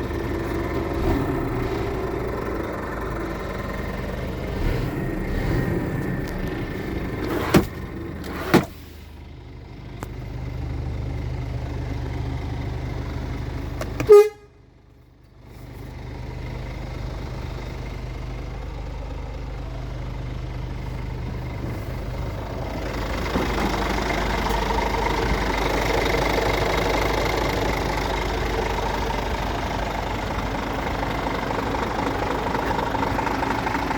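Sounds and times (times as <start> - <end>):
truck diesel engine running: 0.0 - 33.9
truck horn toot: 14.0 - 14.6.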